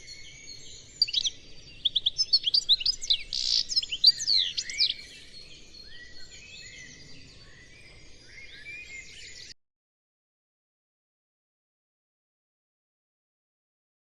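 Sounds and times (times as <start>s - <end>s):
small songbirds chirping: 0.0s - 9.6s.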